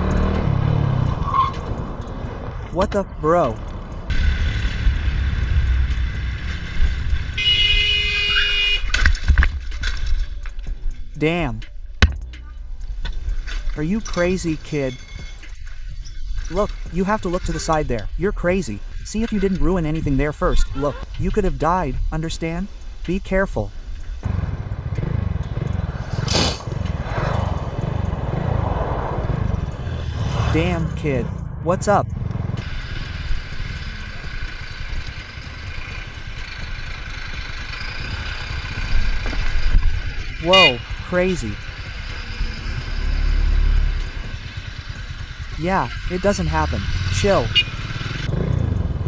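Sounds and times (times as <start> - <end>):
engine and wind rumble: 0.0 - 49.0
vehicle horn long blast: 7.4 - 9.0, 40.4 - 41.0, 47.5 - 47.9
riding noise: 8.3 - 49.0
sharp knocks: 12.0 - 12.4
second louder horn note: 40.4 - 41.0.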